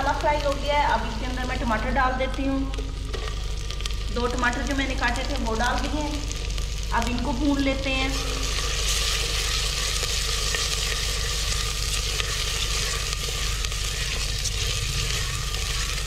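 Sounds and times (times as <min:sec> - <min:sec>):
tomatoes sizzling in hot oil: 0:00.0 - 0:16.0
spatula stirring: 0:08.4 - 0:16.0.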